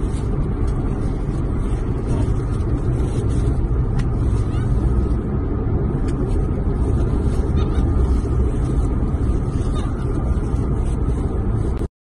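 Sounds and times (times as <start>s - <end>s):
car driving rumble inside cabin: 0.0s - 11.9s.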